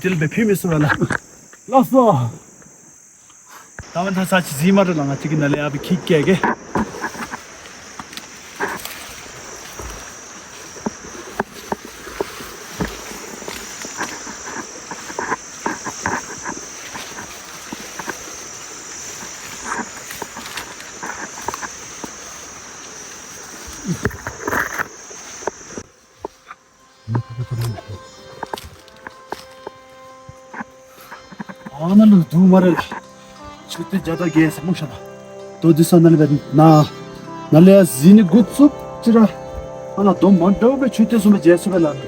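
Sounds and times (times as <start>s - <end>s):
chorus of calling animals: 26.4s - 29.6s.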